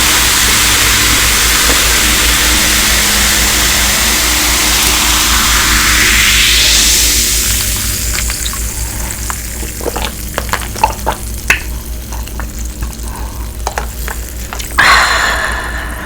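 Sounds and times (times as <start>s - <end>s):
rush of noise: 0.0s - 8.1s, 14.8s - 16.0s
sauce bubbling in a pot: 0.0s - 16.0s
sizzling hiss: 0.0s - 16.0s.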